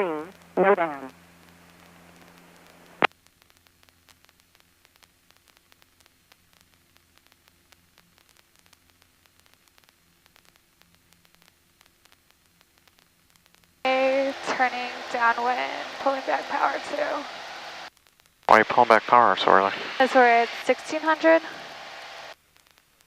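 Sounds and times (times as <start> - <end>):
low hum: 0.0 - 22.4
crackling radio static: 0.0 - 23.0.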